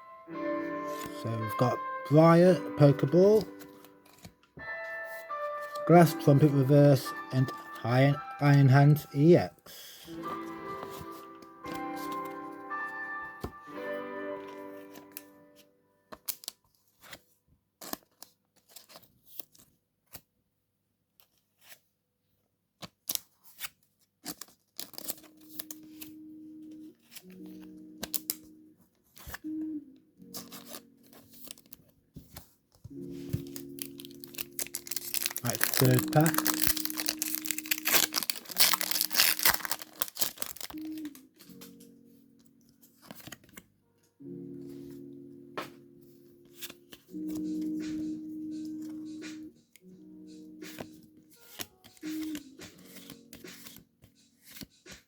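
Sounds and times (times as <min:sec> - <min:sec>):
background music: 0:00.0 - 0:16.0, 0:25.1 - 0:31.9, 0:32.9 - 0:55.0
cards and foil pack crinkling: 0:00.6 - 0:15.4, 0:16.1 - 0:20.2, 0:22.8 - 0:41.9, 0:42.5 - 0:43.7, 0:50.4 - 0:55.0
foil wrapper crinkling and tearing: 0:22.9 - 0:26.0, 0:33.3 - 0:41.2.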